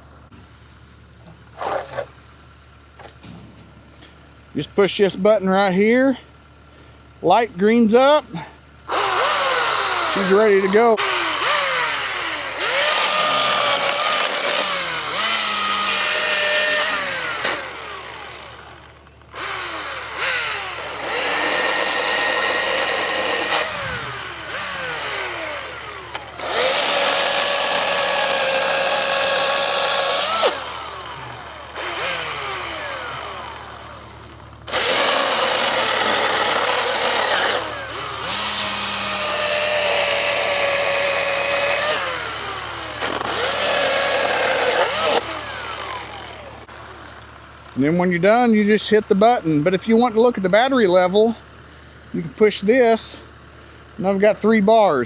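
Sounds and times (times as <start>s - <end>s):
electric chainsaw whining: 1.5s - 2.2s, 8.3s - 47.8s.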